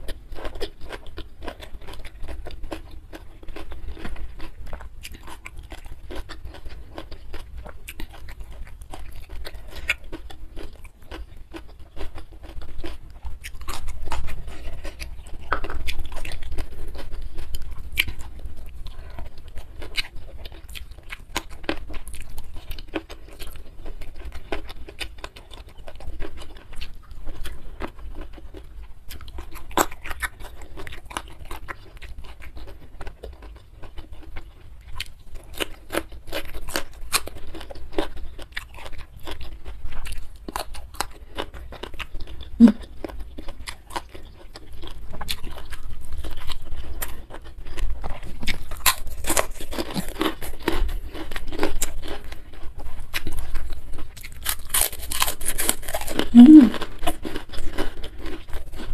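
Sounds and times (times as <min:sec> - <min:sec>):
wet chewing: 0:00.0 - 0:58.9
quick mouth clicks: 0:56.3 - 0:56.8.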